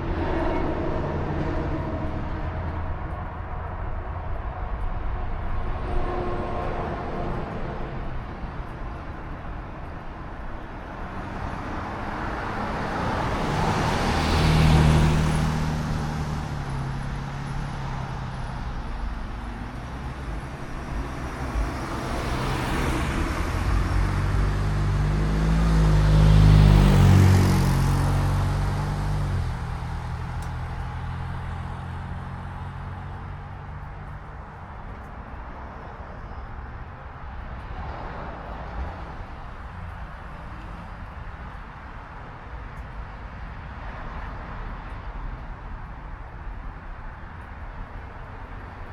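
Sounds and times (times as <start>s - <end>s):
vehicle with deep engine passing: 0.0s - 35.3s
vehicle passing by: 0.0s - 36.8s
steady road noise: 0.0s - 48.9s.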